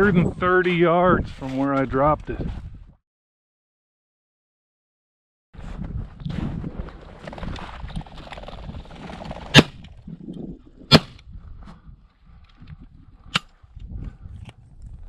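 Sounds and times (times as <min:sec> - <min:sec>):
shotgun shots: 0:10.9 - 0:11.2.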